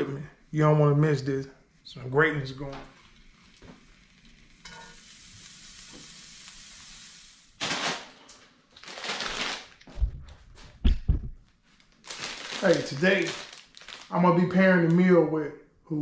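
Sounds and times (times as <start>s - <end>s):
food sizzling in a skillet: 2.9s - 8.0s.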